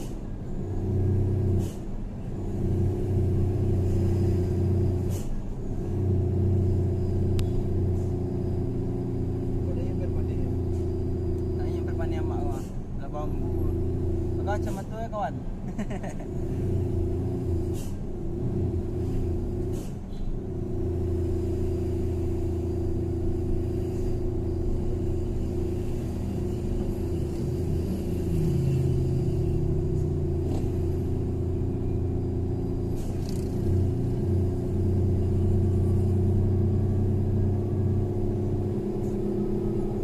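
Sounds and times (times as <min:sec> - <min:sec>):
truck engine droning: 0:00.0 - 0:40.0.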